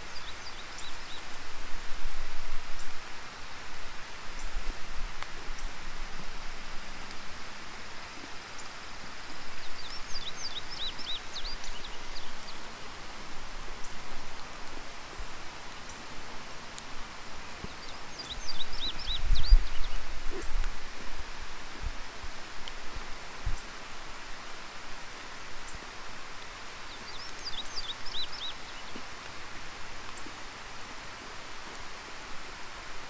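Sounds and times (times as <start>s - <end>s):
rain hiss: 0.0s - 33.0s.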